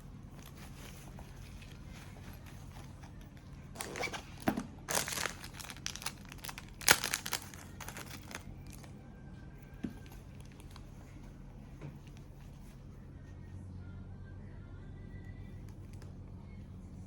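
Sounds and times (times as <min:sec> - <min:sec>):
faint steady hum: 0:00.0 - 0:17.0
packaging crinkling and rustling: 0:00.2 - 0:09.0, 0:09.9 - 0:11.2.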